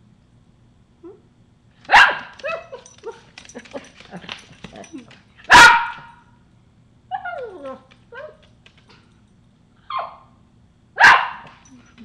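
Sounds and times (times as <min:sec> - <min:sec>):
dog barking: 0:01.9 - 0:02.8, 0:05.5 - 0:06.2, 0:11.0 - 0:11.6
dog whining: 0:07.1 - 0:08.5.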